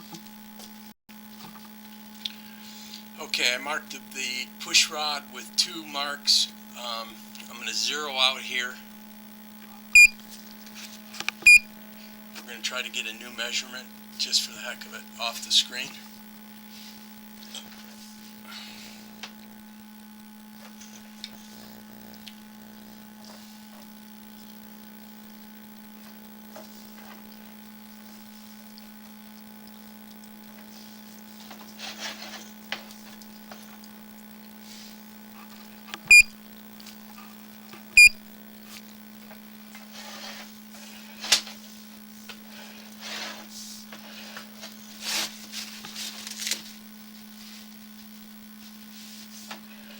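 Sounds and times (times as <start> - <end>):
electrical hum: 0.0 - 49.9
short electronic beeps: 10.0 - 10.2, 11.5 - 11.7, 36.1 - 36.3, 38.0 - 38.2.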